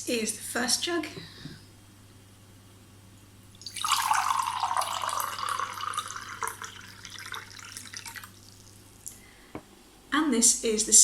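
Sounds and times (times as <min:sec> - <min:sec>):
water pouring into a mug: 0:03.6 - 0:08.8.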